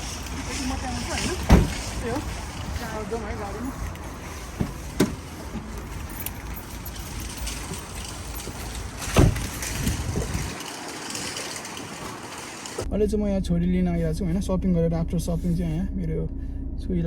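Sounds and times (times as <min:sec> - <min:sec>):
low outdoor rumble: 0:00.0 - 0:17.0
loud thump: 0:01.4 - 0:02.0, 0:09.0 - 0:09.7.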